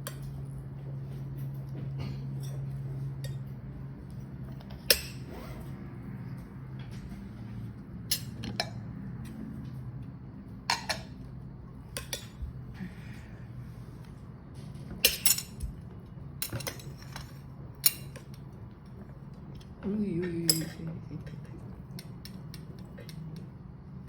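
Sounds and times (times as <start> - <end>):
utensils and dishes clinking: 4.6 - 5.3, 8.0 - 8.9, 10.6 - 12.5, 14.8 - 18.4, 19.9 - 21.4.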